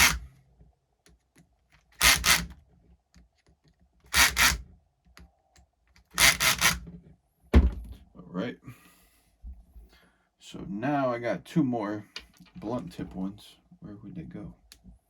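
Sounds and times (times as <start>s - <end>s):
cordless drill driving screws: 0.0s - 0.3s, 2.0s - 2.6s, 4.1s - 4.6s, 6.1s - 6.8s.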